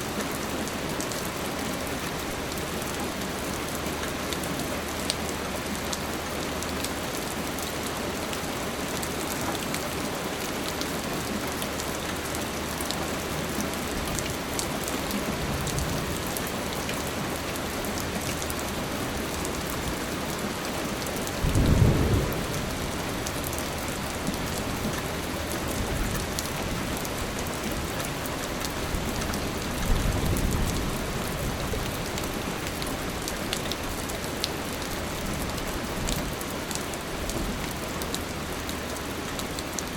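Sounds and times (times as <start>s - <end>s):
steady rain falling: 0.0s - 39.9s
low thunder rumbles: 21.4s - 24.6s.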